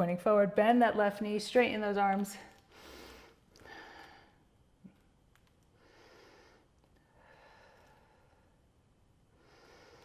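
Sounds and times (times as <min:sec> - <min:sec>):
person breathing slowly: 0:02.6 - 0:04.5, 0:05.7 - 0:08.7, 0:09.3 - 0:10.0.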